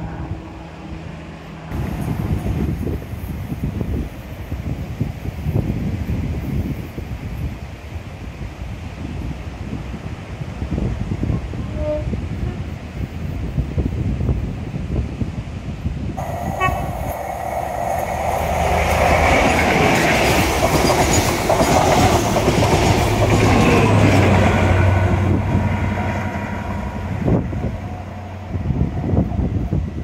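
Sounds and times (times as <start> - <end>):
train horn toot: 11.5 - 12.8, 16.2 - 17.2
train wheels clattering on rails: 16.2 - 25.6.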